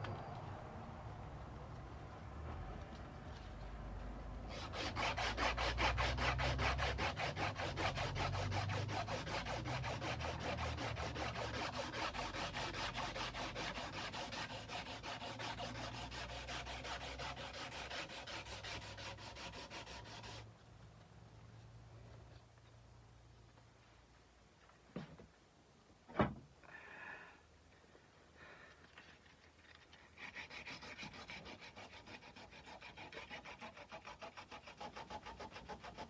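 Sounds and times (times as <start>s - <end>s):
sandpaper rubbing a steel blade: 4.5s - 20.4s, 30.1s - 36.0s.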